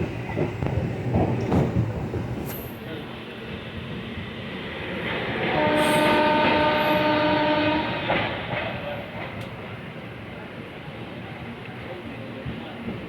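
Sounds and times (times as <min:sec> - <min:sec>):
train rumbling and clattering: 0:00.0 - 0:13.0
train horn blast: 0:05.5 - 0:08.4.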